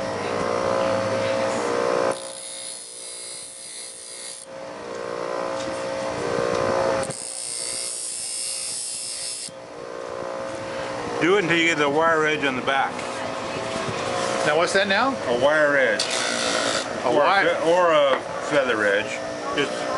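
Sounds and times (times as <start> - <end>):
motorised sharpening wheel running: 0.0 - 19.9
knife blade grinding: 2.1 - 4.5, 7.0 - 9.6.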